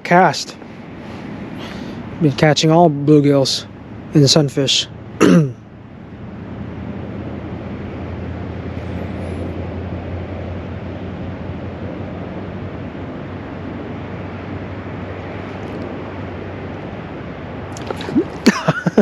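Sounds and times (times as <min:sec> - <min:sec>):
fast-flowing water rushing: 0:17.7 - 0:19.0.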